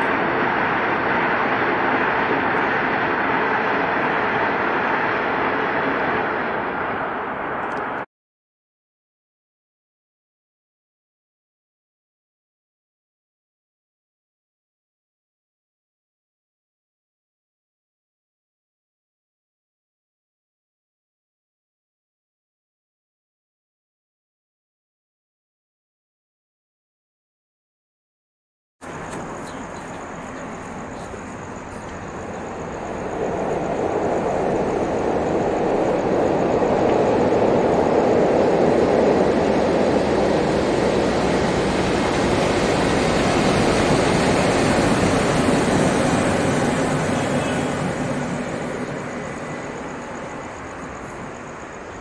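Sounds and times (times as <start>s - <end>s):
train wheels rumbling on rail: 0.0s - 8.0s, 28.8s - 52.0s.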